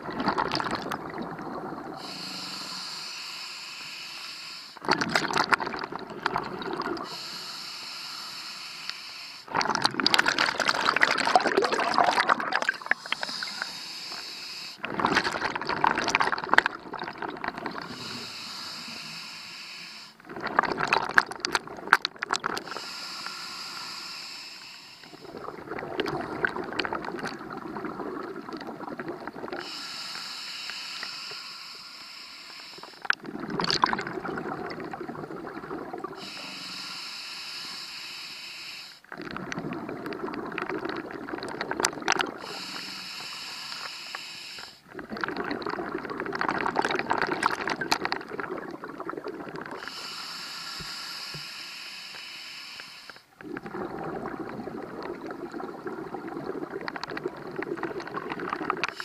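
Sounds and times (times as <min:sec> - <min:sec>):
exhaled bubbles gurgling: 0:00.0 - 0:02.9, 0:04.8 - 0:07.6, 0:09.4 - 0:19.3, 0:20.1 - 0:23.8, 0:25.0 - 0:31.3, 0:32.8 - 0:37.0, 0:39.0 - 0:43.9, 0:44.8 - 0:51.4, 0:53.3 - 0:59.0
regulator hissing on inhalation: 0:02.0 - 0:04.8, 0:07.0 - 0:09.5, 0:12.8 - 0:14.8, 0:17.8 - 0:20.2, 0:22.6 - 0:25.3, 0:29.6 - 0:33.0, 0:36.2 - 0:39.0, 0:42.4 - 0:44.8, 0:49.8 - 0:53.3.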